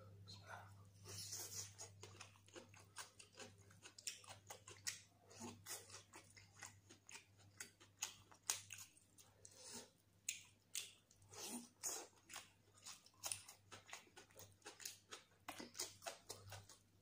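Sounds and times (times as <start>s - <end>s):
crisp chewing crunches: 1.6s - 9.4s.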